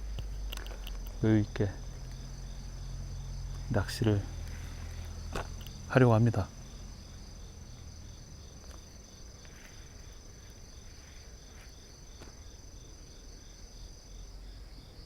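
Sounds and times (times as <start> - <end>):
high continuous cricket trill: 0.0 - 15.0
lower pulsing cricket chirp: 0.0 - 15.0
faint clicks: 0.1 - 1.2.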